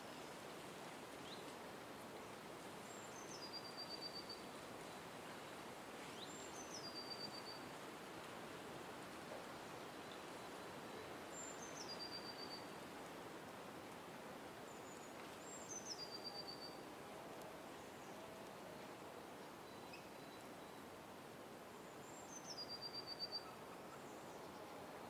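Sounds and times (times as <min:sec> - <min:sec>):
faint outdoor hiss: 0:00.0 - 0:25.0
songbird calling with trill: 0:02.9 - 0:04.5, 0:06.1 - 0:07.6, 0:09.8 - 0:12.8, 0:14.7 - 0:16.8, 0:19.6 - 0:20.9, 0:21.9 - 0:24.8.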